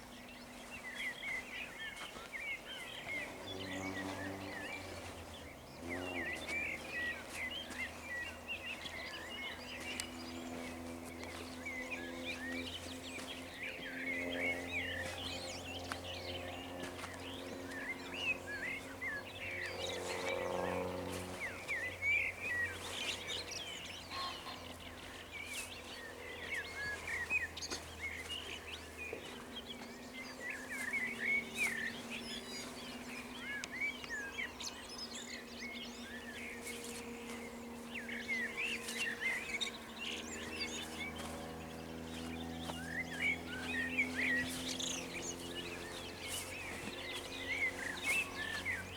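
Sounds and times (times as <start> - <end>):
songbirds singing and chirping: 0.0 - 48.9.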